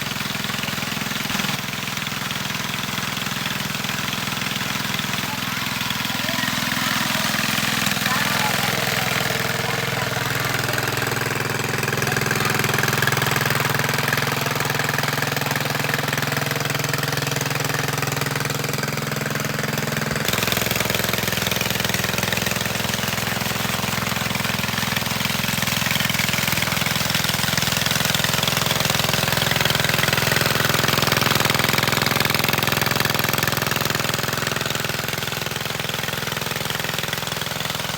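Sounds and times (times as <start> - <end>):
small petrol engine running: 0.0 - 37.9.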